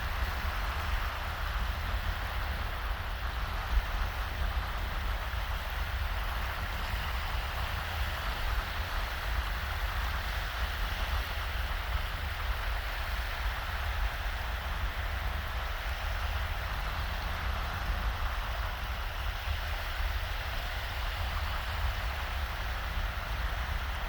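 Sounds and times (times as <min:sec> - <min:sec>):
small waves washing on sand: 0:00.0 - 0:24.0.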